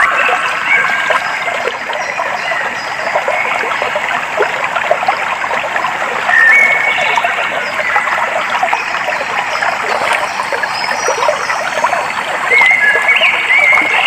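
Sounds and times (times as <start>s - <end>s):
stream babbling over stones: 0.0s - 14.0s.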